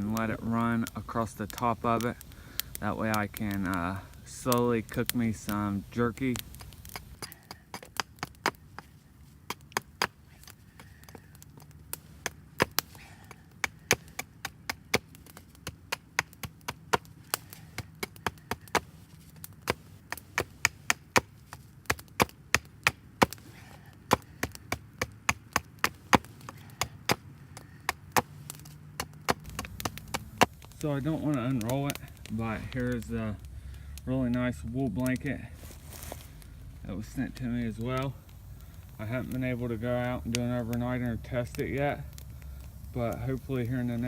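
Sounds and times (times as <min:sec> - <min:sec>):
blade chopping wooden branch: 0:00.8 - 0:33.5.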